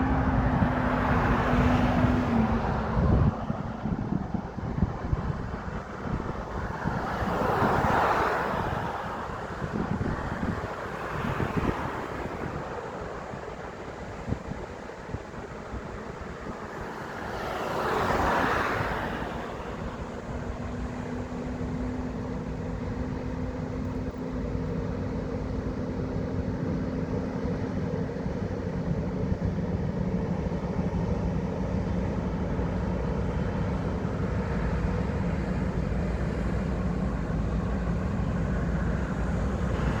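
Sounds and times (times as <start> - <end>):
vehicle passing close by: 0.0 - 14.4, 16.4 - 27.8
low steady rumble: 19.6 - 40.0.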